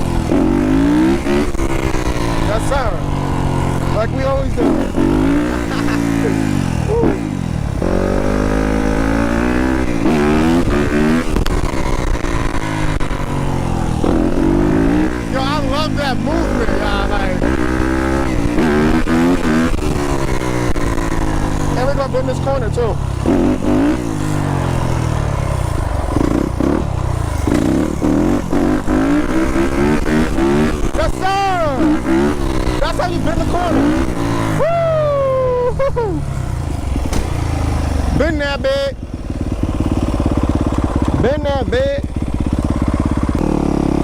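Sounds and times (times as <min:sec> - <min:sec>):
dirt bike engine revving: 0:00.0 - 0:44.0
road noise: 0:00.0 - 0:44.0
sharp click: 0:37.0 - 0:37.4.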